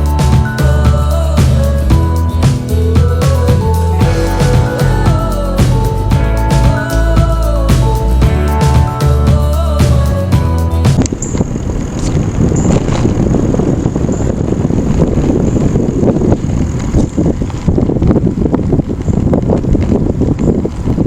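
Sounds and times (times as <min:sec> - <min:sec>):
music: 0:00.0 - 0:11.1
wind buffeting microphone: 0:00.0 - 0:21.0.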